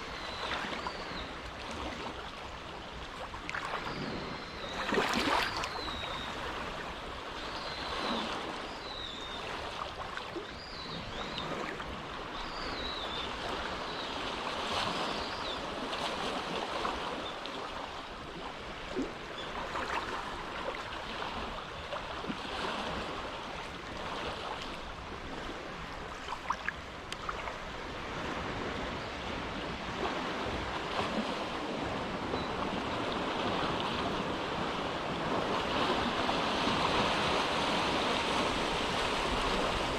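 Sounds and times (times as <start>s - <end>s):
small waves washing: 0.0s - 39.9s.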